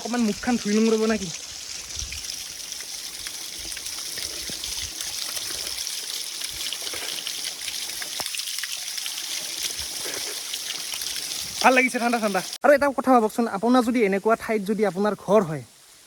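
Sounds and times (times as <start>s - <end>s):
waterfall splashing: 0.0s - 12.6s.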